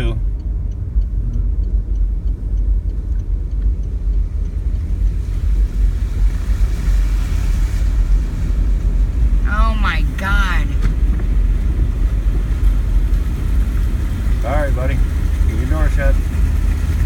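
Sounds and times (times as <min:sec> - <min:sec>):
truck engine and road rumble: 0:00.0 - 0:17.0
water washing: 0:04.2 - 0:17.0.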